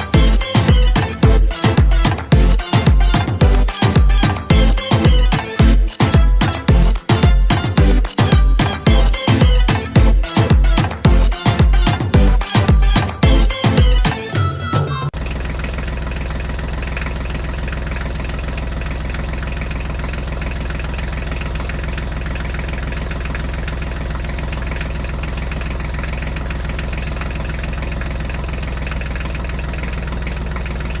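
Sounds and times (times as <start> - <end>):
music: 0.0 - 15.2
tractor engine idling: 0.0 - 31.0.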